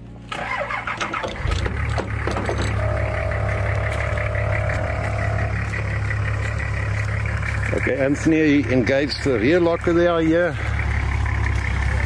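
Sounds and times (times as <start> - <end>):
engine starting and idling: 0.2 - 12.0
steady warning tone: 2.6 - 8.5.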